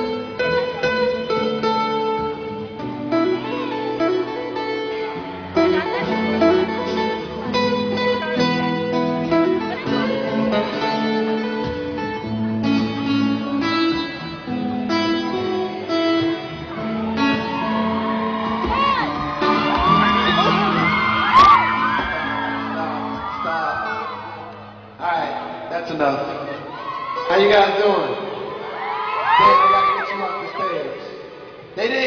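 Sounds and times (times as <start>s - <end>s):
acoustic guitar strumming chords: 0.0s - 25.6s
audience screaming: 16.7s - 24.9s, 26.4s - 31.2s.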